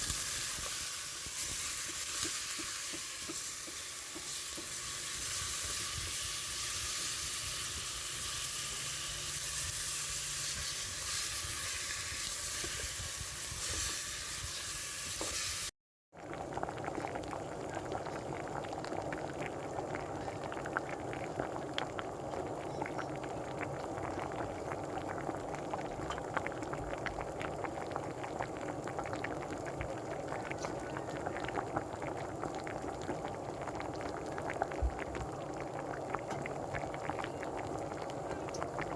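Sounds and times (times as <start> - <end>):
meat sizzling in a pan: 0.0 - 15.7
pot of liquid bubbling: 0.0 - 38.9.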